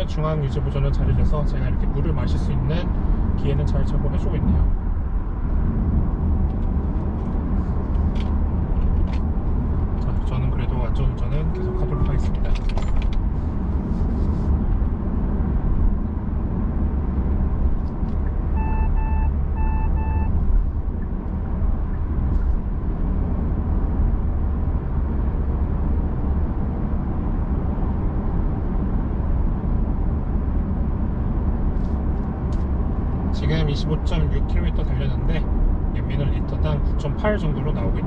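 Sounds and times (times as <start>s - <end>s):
road and tyre noise: 0.0s - 38.0s
car chime beeps: 11.5s - 12.5s, 18.6s - 20.3s.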